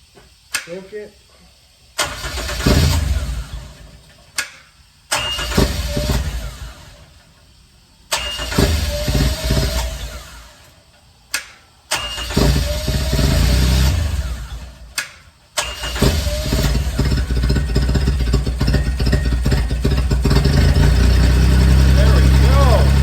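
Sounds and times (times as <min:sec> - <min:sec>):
engine cranking and running: 0:02.0 - 0:23.0
sharp clicks: 0:14.9 - 0:15.2.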